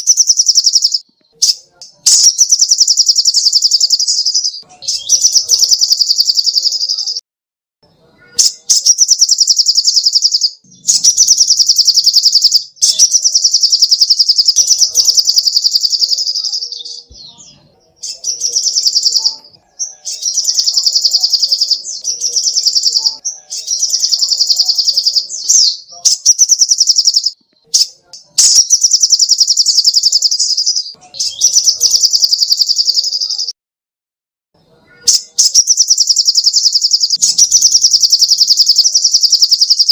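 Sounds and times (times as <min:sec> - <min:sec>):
songbird rattling trills: 0:00.0 - 0:06.8, 0:08.7 - 0:16.5, 0:35.4 - 0:39.9.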